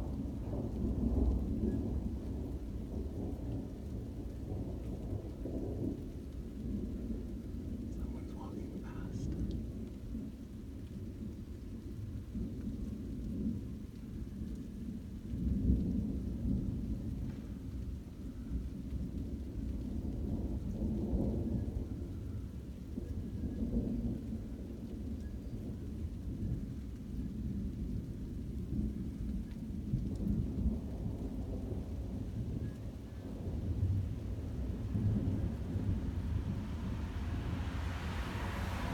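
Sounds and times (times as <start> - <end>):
rolling thunder: 27.6 - 38.9.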